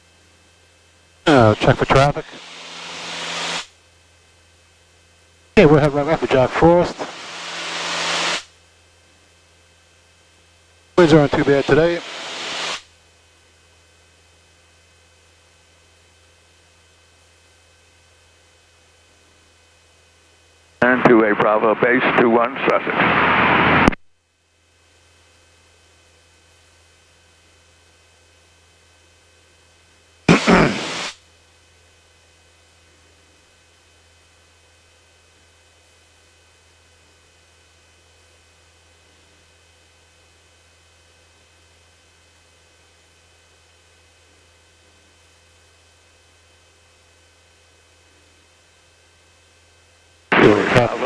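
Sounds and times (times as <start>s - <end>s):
electrical hum: 0.0s - 51.0s
muffled aircraft engine drone: 0.0s - 51.0s
low hum: 1.2s - 3.8s, 5.6s - 8.6s, 20.8s - 24.0s, 50.3s - 51.0s
voice over radio: 1.3s - 2.5s, 5.6s - 7.2s, 11.0s - 12.1s, 20.8s - 23.2s, 50.3s - 51.0s
even hiss: 1.3s - 3.7s, 5.6s - 8.5s, 11.0s - 12.8s, 30.3s - 31.2s, 50.3s - 51.0s
thin whine tones: 1.3s - 3.8s, 5.6s - 8.5s, 11.0s - 12.8s, 50.3s - 51.0s.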